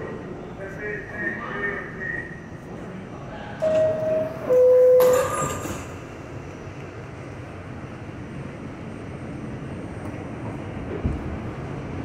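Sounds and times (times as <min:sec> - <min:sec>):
subway car low rumble: 0:00.0 - 0:12.0
subway doors closing: 0:00.0 - 0:12.0
two-tone door chime: 0:03.6 - 0:05.6.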